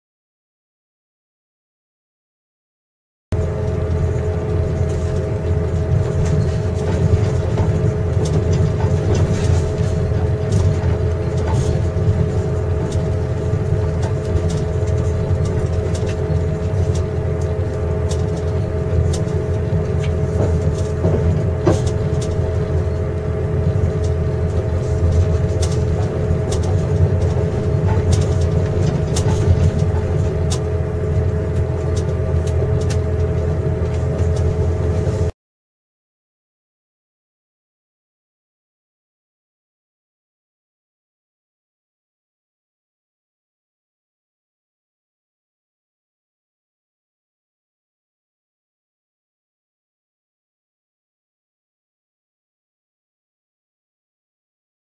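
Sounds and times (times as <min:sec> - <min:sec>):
steady hums: 0:03.4 - 0:35.3
train rumbling: 0:03.4 - 0:35.3.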